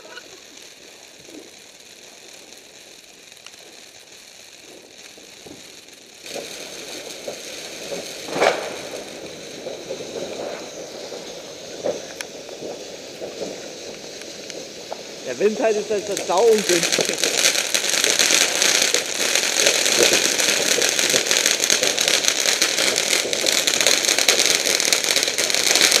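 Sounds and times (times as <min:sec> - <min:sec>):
firework fountains crackling hiss: 0:00.0 - 0:26.0
firework pop: 0:07.2 - 0:15.5, 0:16.1 - 0:26.0.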